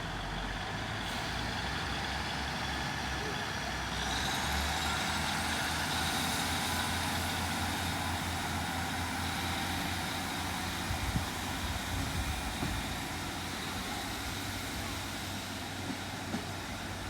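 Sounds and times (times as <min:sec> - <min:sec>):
diesel train engine humming: 0:00.0 - 0:17.0.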